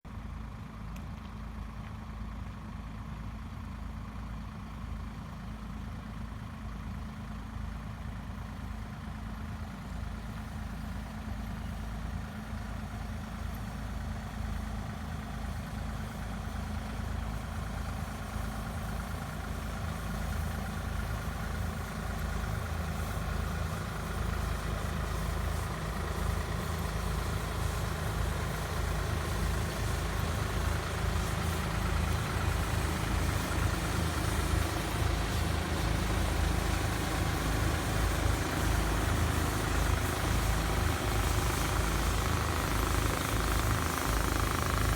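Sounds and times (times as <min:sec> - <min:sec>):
fogging machine engine running: 0:10.4 - 0:44.9.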